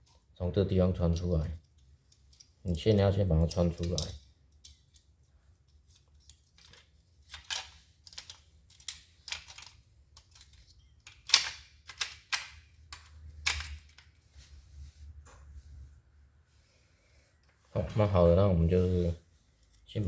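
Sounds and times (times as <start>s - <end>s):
plastic parts clicking and rattling: 1.0s - 2.6s, 3.3s - 14.2s.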